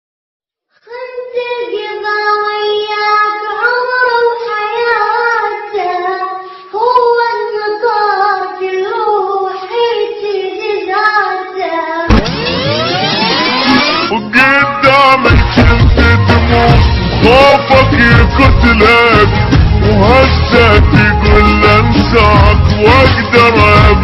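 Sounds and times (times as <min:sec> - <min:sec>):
child singing unaccompanied: 0:00.9 - 0:12.1
music with loud swooping sound: 0:12.1 - 0:14.4.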